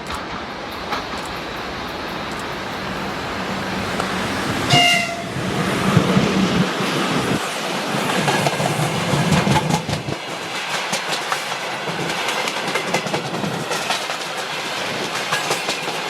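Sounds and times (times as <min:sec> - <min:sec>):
train rumbling past: 0:00.0 - 0:16.0
train horn blast: 0:04.6 - 0:05.5.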